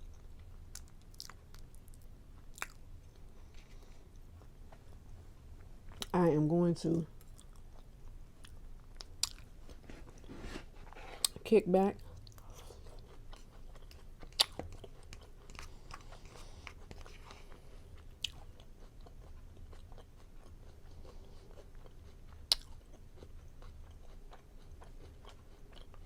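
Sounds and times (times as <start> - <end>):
person chewing food: 0.0 - 6.2, 7.1 - 11.4, 12.0 - 26.0.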